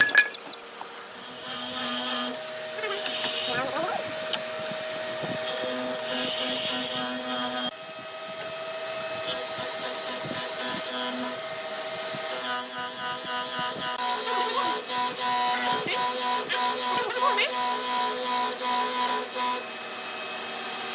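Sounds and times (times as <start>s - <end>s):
power tool motor working wood: 0.0s - 20.9s.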